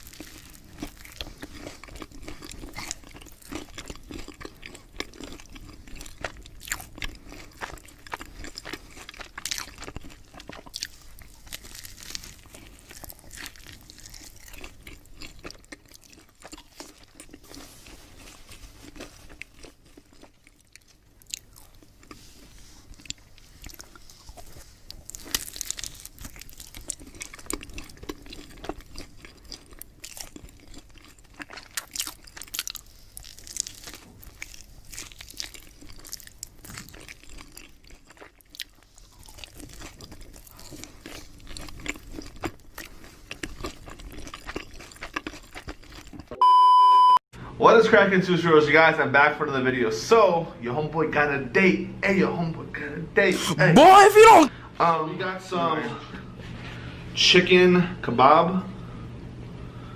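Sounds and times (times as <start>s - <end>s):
person chewing crunchy food: 0.0s - 46.4s.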